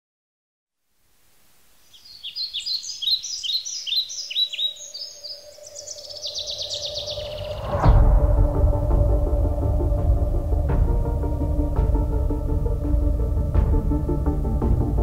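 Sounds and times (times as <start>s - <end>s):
songbird singing: 1.2s - 15.0s.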